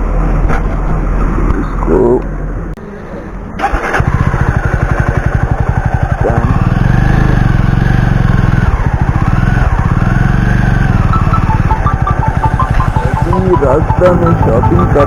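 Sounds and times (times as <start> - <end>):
motorcycle engine pulling away: 3.6 - 15.0.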